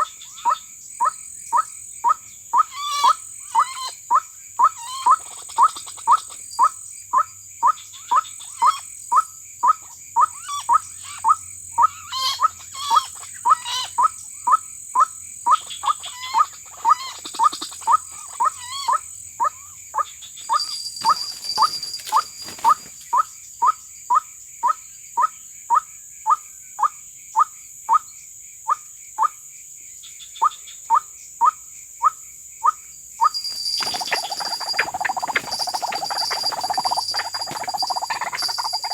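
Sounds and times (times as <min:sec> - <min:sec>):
waterhen calling: 0:20.4 - 0:23.0, 0:33.3 - 0:38.9
high insect buzz: 0:20.4 - 0:23.2, 0:33.2 - 0:38.9.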